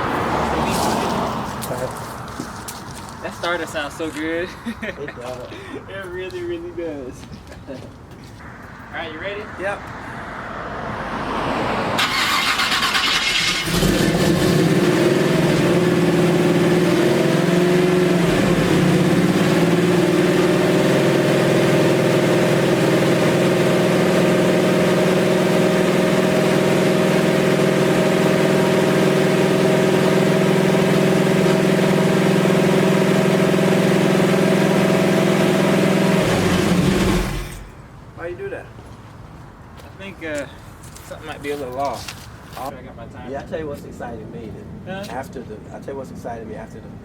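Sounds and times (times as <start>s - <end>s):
starter cranking engine: 12.0s - 14.6s
car engine running: 12.0s - 37.7s.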